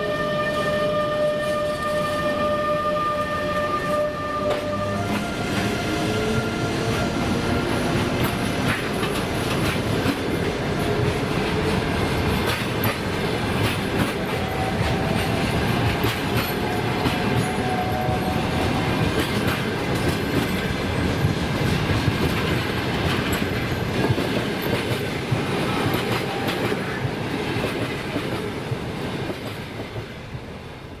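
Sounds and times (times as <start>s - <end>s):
train rolling rumble: 0.2s - 31.0s
wheels clicking over rail joints: 8.1s - 29.9s.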